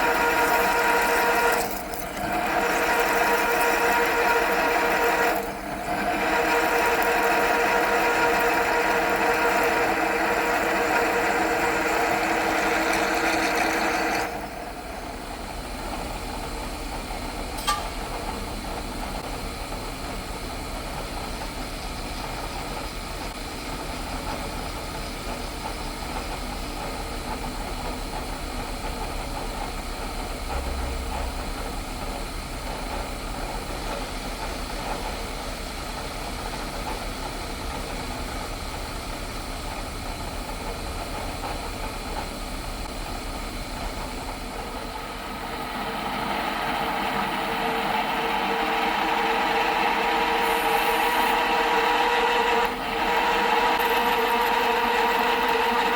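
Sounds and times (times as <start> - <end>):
milling machine drilling steel: 0.0 - 15.2, 49.2 - 55.9.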